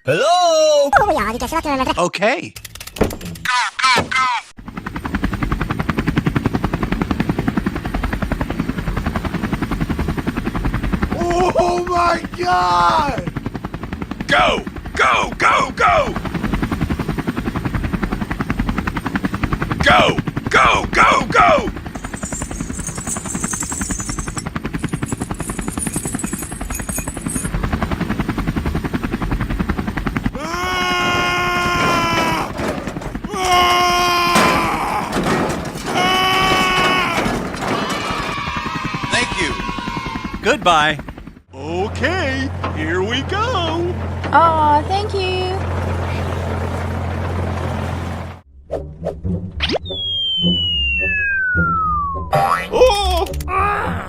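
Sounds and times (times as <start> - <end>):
small engine chugging: 20.6 - 30.2.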